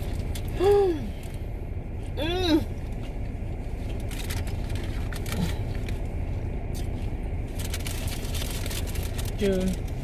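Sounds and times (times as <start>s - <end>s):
car cabin hum: 0.0s - 10.0s
crunching of hard-shell tacos: 0.0s - 10.0s
person humming: 2.2s - 2.7s
paper wrappers crinkling: 3.9s - 6.0s, 7.5s - 10.0s.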